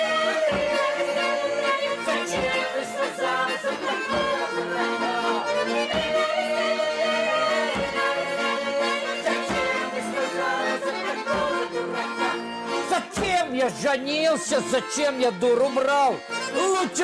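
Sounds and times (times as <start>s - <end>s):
accordion playing folk tune: 0.0s - 17.0s.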